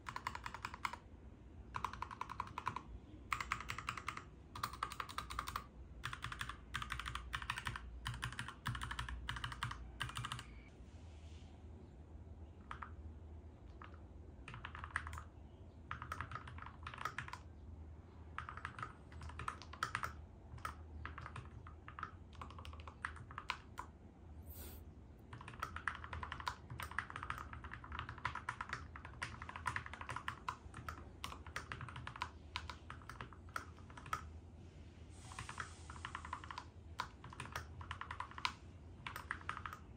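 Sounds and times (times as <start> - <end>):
mechanical keyboard typing: 0.0 - 1.0, 1.7 - 10.6, 12.6 - 13.0, 13.6 - 15.3, 15.9 - 17.5, 18.3 - 23.9, 25.3 - 34.3, 35.4 - 39.9.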